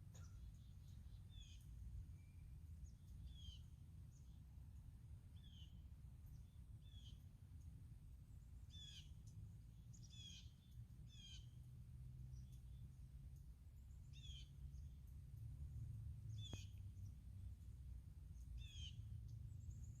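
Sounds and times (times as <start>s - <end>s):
faint bird chirps: 0.0s - 4.5s, 5.3s - 11.6s, 12.3s - 15.1s, 16.3s - 17.3s, 18.3s - 20.0s
low steady rumble: 0.0s - 20.0s.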